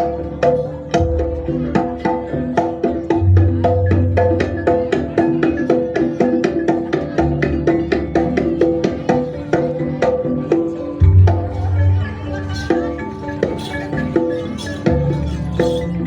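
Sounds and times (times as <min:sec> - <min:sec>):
drumming: 0:00.0 - 0:16.0
struck pitched metal notes: 0:10.3 - 0:16.0.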